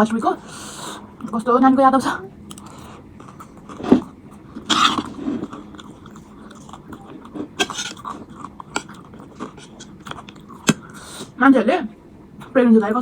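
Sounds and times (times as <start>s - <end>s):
crunchy bites and chewing: 2.4s - 11.0s.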